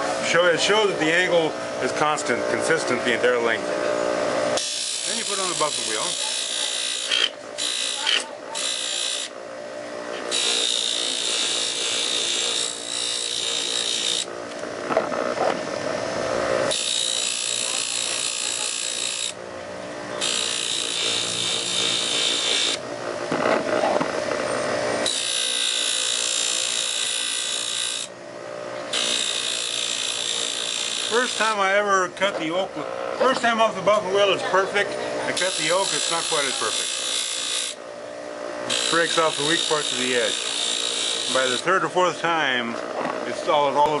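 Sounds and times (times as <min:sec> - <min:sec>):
knife blade rasping on wheel: 0:04.6 - 0:09.3, 0:10.3 - 0:14.3, 0:16.7 - 0:19.4, 0:20.2 - 0:22.8, 0:25.0 - 0:28.1, 0:28.9 - 0:31.6, 0:35.4 - 0:37.8, 0:38.7 - 0:41.7.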